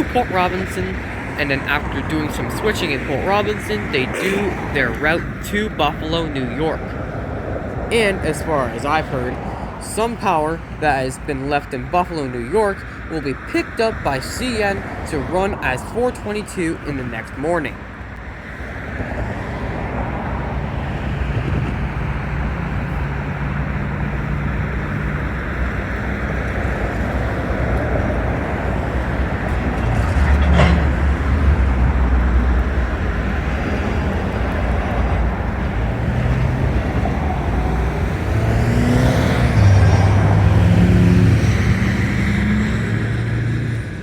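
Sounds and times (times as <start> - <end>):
diesel locomotive engine running: 0.0 - 43.1.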